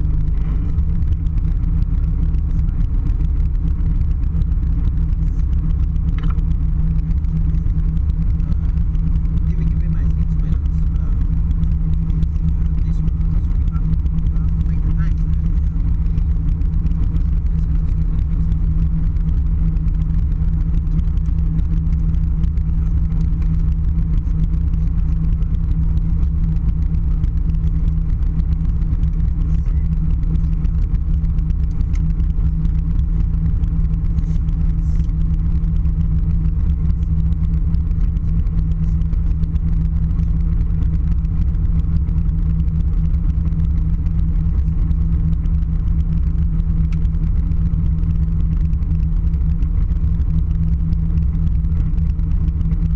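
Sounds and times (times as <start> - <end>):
aircraft cabin engine rumble: 0.0 - 52.9.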